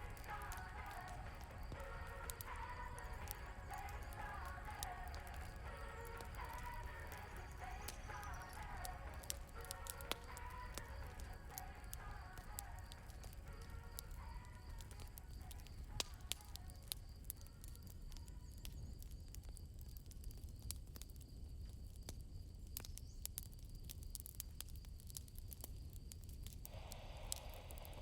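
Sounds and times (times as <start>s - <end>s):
crickets chirping: 0.0s - 19.8s, 26.7s - 28.0s
campfire crackling and popping: 0.0s - 28.0s.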